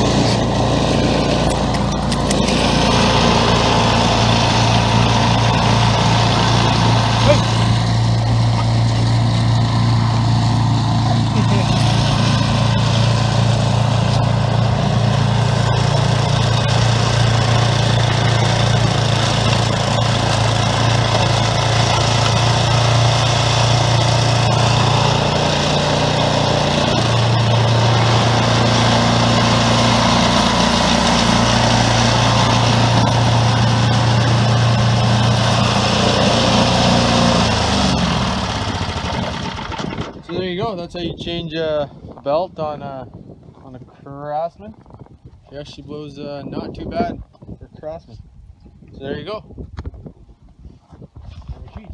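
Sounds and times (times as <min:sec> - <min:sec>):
snowblower engine running: 0:00.0 - 0:40.4.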